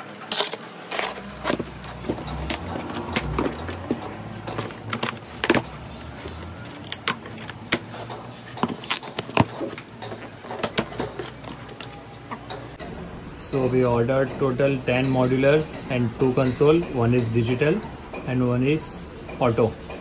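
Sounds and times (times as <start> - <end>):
cardboard box being opened: 0.3 - 8.0.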